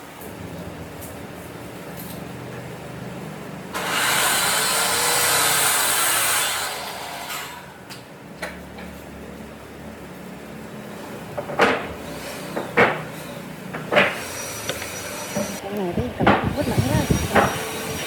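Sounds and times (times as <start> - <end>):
sharp knocks: 11.4 - 17.7
power tool rushing noise: 16.3 - 18.0.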